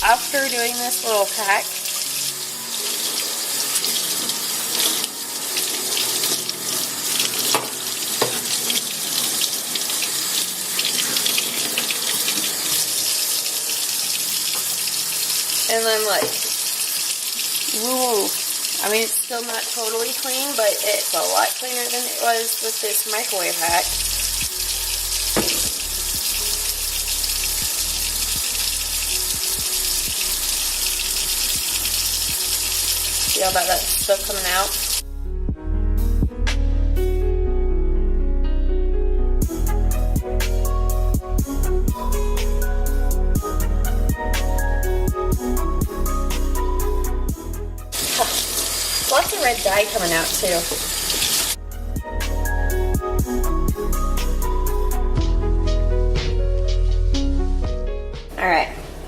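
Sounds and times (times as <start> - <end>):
tap water running into sink: 0.0 - 35.0, 47.9 - 51.6
sponge being rinsed: 2.8 - 35.0, 48.0 - 51.6.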